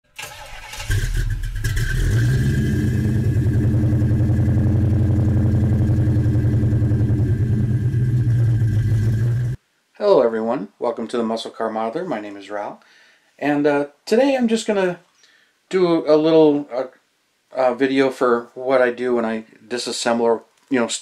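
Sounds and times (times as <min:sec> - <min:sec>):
car engine starting and idling: 0:00.1 - 0:09.6.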